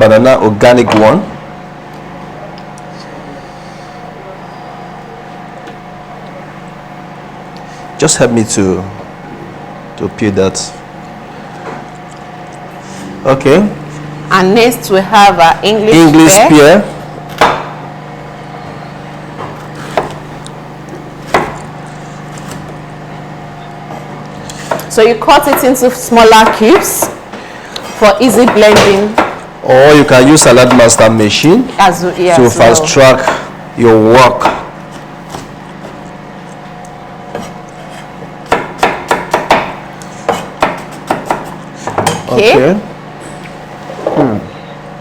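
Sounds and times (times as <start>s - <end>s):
steady low hum: 0.0s - 45.0s
knife chopping on cutting board: 17.3s - 17.8s, 19.4s - 20.3s, 21.2s - 21.7s, 24.5s - 27.2s, 28.4s - 29.5s, 34.3s - 36.0s, 37.3s - 42.3s
knife knocking on cutting board: 28.4s - 29.4s.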